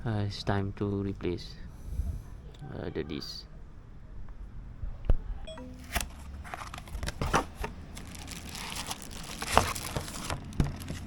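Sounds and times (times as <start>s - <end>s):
packaging crinkling and tearing: 5.8s - 11.0s.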